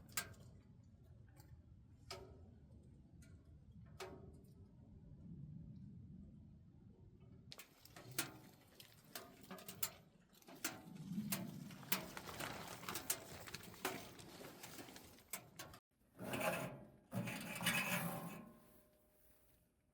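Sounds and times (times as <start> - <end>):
wood fire crackling and popping: 10.6 - 15.8.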